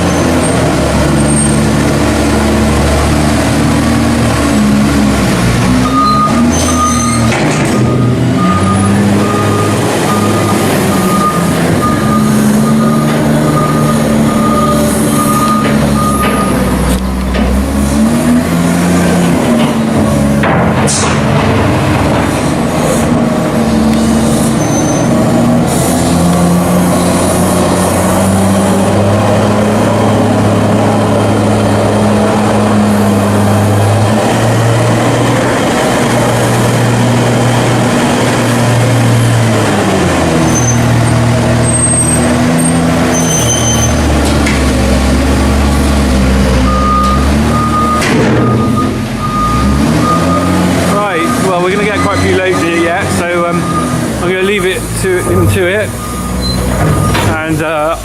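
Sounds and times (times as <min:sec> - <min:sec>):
diesel farm machinery engine: 0:00.0 - 0:58.0
reversing alarm beeping: 0:05.8 - 0:16.8, 0:46.6 - 0:58.0.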